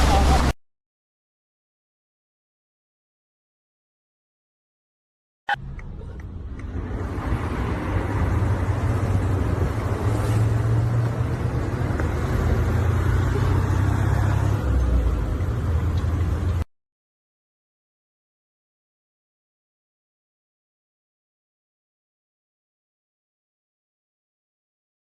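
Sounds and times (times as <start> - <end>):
motor vehicle rumble: 0.0 - 0.6, 5.5 - 16.7.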